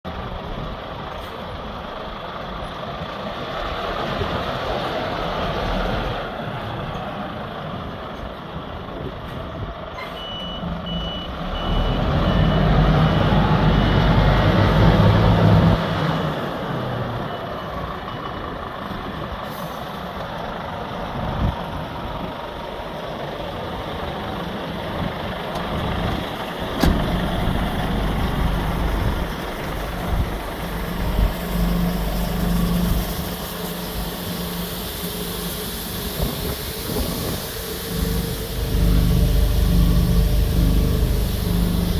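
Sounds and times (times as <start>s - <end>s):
diesel truck engine running: 0.0s - 41.9s
reversing alarm beeping: 10.0s - 15.8s, 26.8s - 41.9s.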